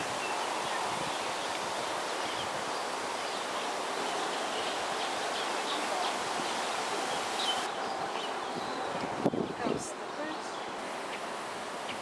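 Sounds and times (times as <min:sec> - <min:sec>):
outdoor ambient hiss: 0:00.0 - 0:12.0.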